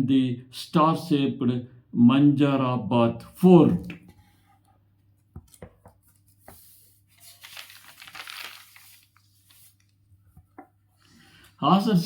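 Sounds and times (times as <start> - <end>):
soft rustle: 6.0 - 10.0.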